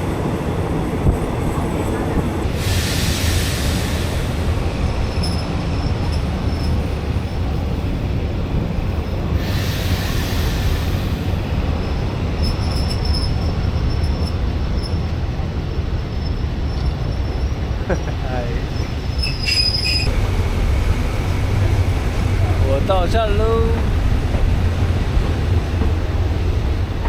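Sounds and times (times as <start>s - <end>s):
train wheels rumbling: 0.0s - 27.0s
rush of hiss: 2.5s - 4.7s, 9.3s - 11.5s
high wheel squeals: 15.8s - 20.1s.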